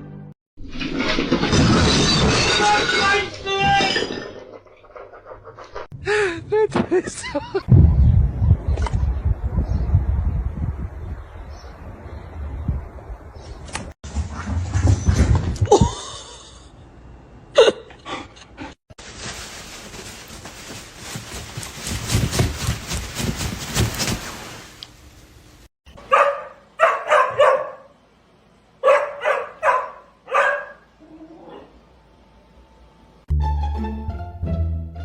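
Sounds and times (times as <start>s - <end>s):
dog barking: 26.0s - 28.0s, 28.8s - 30.9s.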